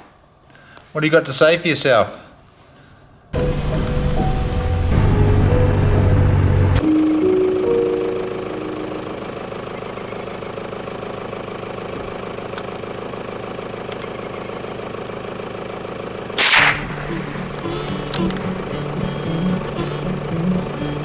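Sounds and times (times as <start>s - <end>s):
loud sudden bang: 16.4s - 17.4s
dirt bike engine running: 16.7s - 21.0s.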